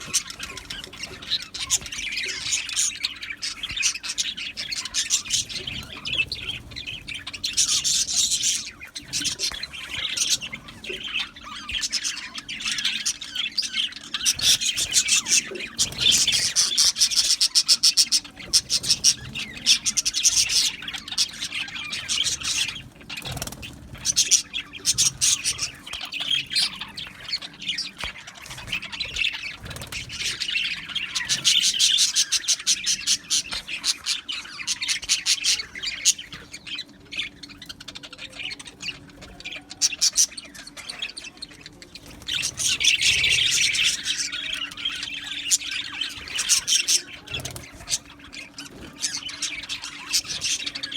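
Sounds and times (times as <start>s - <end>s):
budgerigars chattering and chirping: 0.0s - 50.9s.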